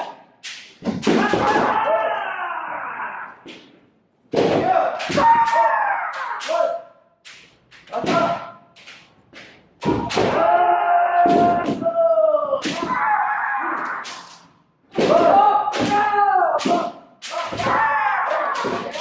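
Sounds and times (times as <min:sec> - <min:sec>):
bamboo swords striking armour: 0:00.8 - 0:01.8, 0:04.3 - 0:06.7, 0:09.8 - 0:10.6, 0:12.6 - 0:13.0, 0:14.9 - 0:19.0.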